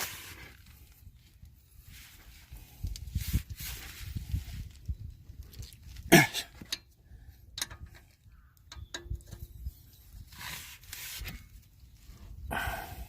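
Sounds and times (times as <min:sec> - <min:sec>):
soft rustle: 0:00.0 - 0:05.9.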